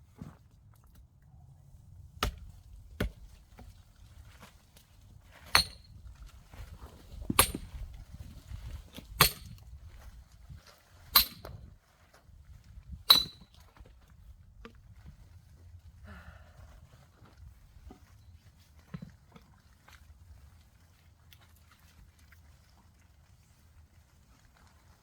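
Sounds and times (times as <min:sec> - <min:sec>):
axe striking log: 0:02.2 - 0:03.7, 0:05.4 - 0:05.9, 0:07.3 - 0:07.7, 0:09.2 - 0:09.6, 0:11.2 - 0:11.6, 0:13.1 - 0:13.5
metallic ring: 0:13.1 - 0:13.4.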